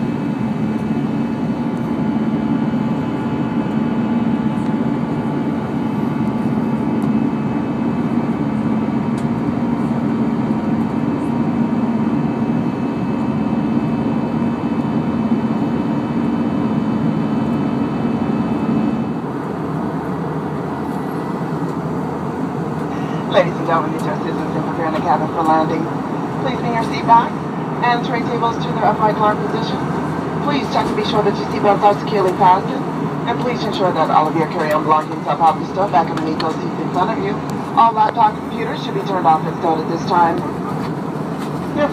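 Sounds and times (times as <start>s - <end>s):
jet engine hum: 0.0s - 41.9s
rushing airflow: 18.2s - 28.8s
faint steady tones: 19.0s - 41.9s.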